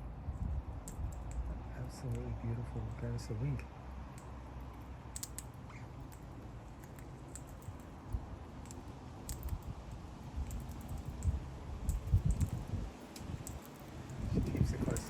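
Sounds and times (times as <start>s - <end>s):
parrots cracking seeds: 5.1s - 15.0s.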